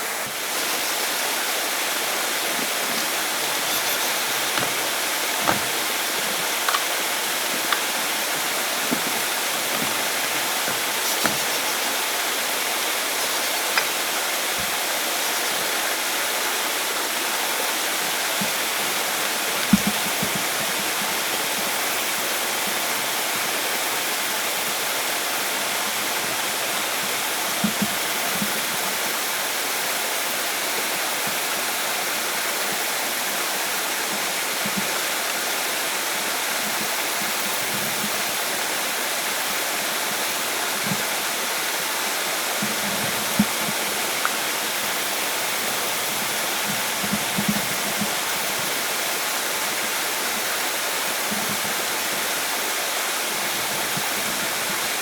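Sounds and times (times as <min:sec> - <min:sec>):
water rushing: 0:00.0 - 0:55.0.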